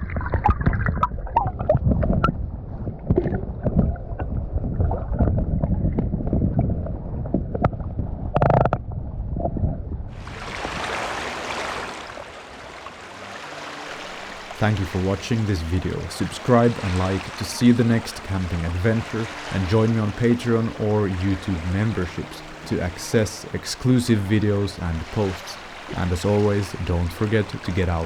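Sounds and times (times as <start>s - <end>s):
water splashing against hull: 0.0s - 28.0s
paddle strokes in water: 10.2s - 28.0s
steady rushing hiss: 13.0s - 28.0s.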